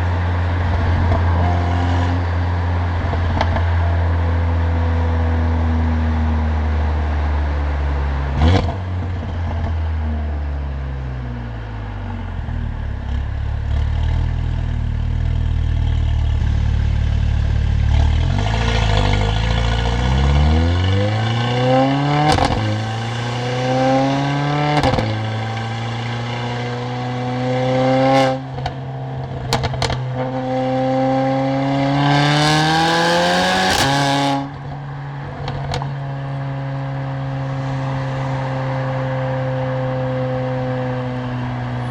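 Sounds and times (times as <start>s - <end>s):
exhaust cracks on upshifts: 0.0s - 4.7s, 11.3s - 36.0s
car engine accelerating: 0.0s - 41.9s.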